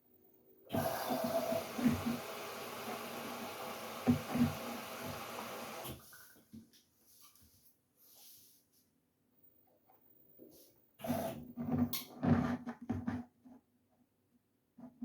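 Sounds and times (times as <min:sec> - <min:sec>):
water rushing into washing machine: 0:00.7 - 0:06.3.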